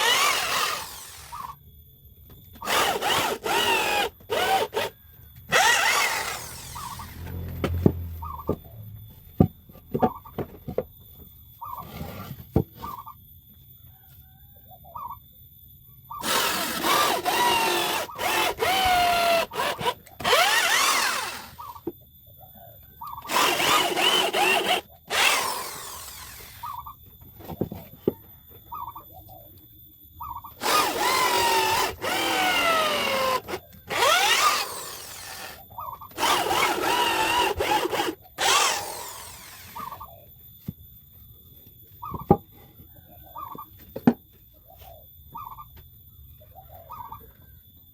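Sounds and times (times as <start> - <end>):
electric drill boring into wood: 0.0 - 1.6, 2.6 - 7.8, 16.2 - 21.7, 23.2 - 26.8, 30.6 - 40.0.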